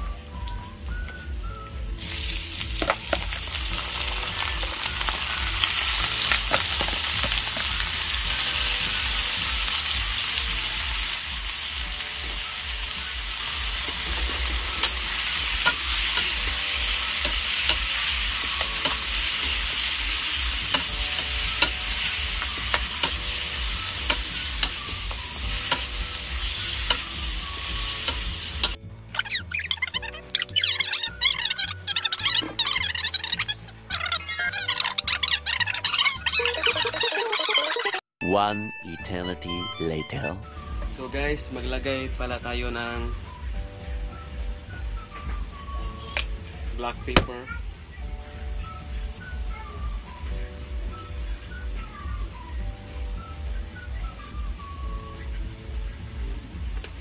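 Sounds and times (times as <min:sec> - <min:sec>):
chicken sizzling in a wok: 0:00.0 - 0:37.8, 0:40.6 - 0:57.0
ladle clicking against pan: 0:18.6 - 0:19.6, 0:20.7 - 0:21.8, 0:24.0 - 0:24.8.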